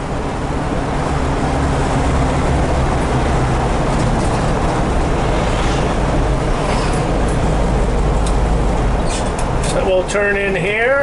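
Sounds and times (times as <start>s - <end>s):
car engine running smoothly: 0.0s - 11.0s
road noise: 0.0s - 11.0s.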